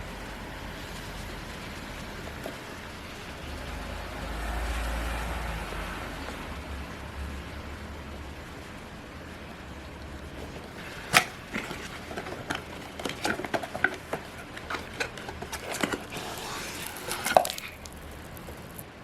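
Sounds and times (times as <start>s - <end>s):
box being handled and unpacked: 10.4s - 18.8s.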